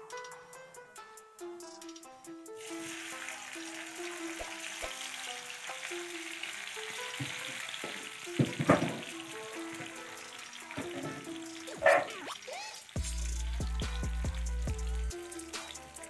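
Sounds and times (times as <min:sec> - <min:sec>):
food sizzling in a wok: 0:02.6 - 0:16.0
clatter in a pan: 0:07.0 - 0:12.0.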